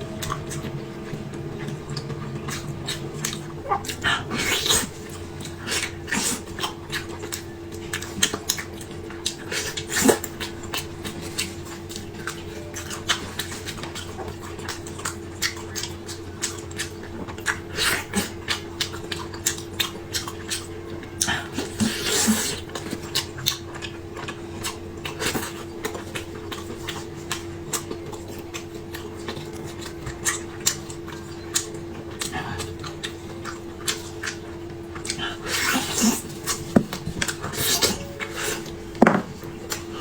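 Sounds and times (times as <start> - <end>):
low hum: 0.0 - 8.0
chewing with crisp crunches: 0.0 - 40.0.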